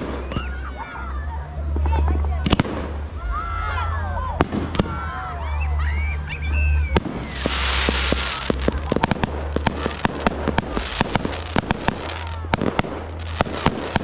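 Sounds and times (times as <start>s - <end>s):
fireworks popping and crackling: 0.0s - 0.6s, 1.7s - 3.1s, 4.4s - 5.1s, 6.9s - 14.0s
firework hissing burst: 6.9s - 14.0s.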